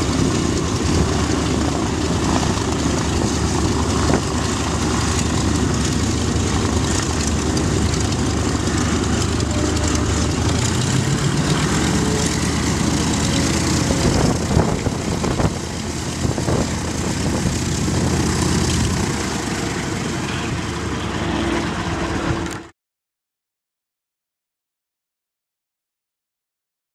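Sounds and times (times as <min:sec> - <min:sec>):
propeller plane piston engine: 0:00.0 - 0:22.7.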